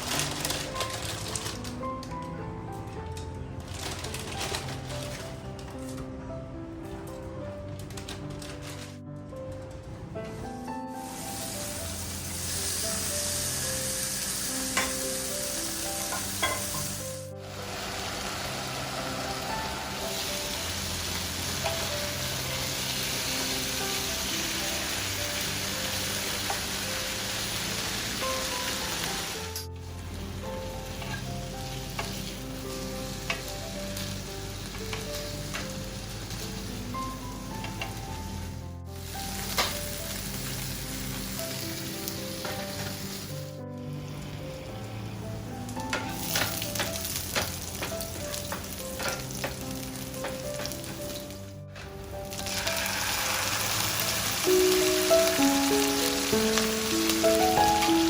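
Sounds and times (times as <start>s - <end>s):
soft background music: 0.0s - 58.0s
food sizzling in a frying pan: 11.0s - 43.6s, 45.7s - 51.4s, 52.3s - 58.0s.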